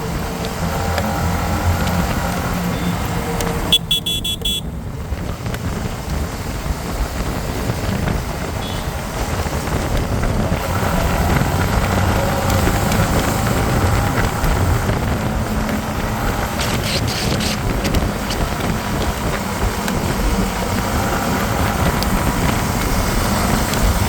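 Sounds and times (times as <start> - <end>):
motorcycle engine: 0.0 - 24.0
wind noise: 0.0 - 24.0
short high beeps: 3.7 - 4.6.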